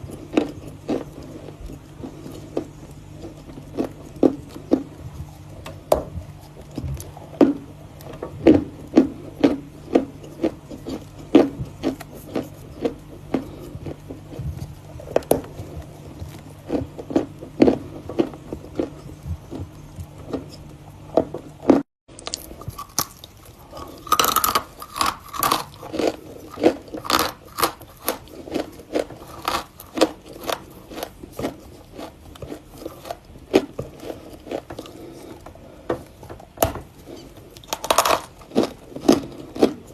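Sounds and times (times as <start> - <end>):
crunchy chewing of chalk: 0.0 - 36.2, 36.9 - 39.9.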